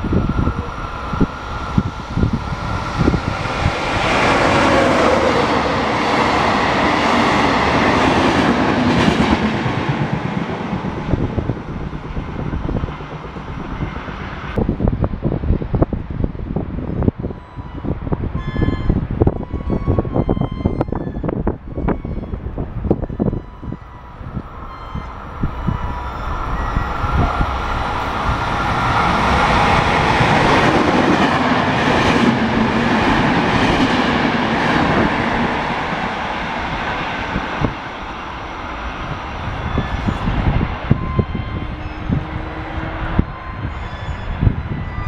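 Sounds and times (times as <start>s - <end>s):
train wheels rushing on rail: 0.0s - 45.0s.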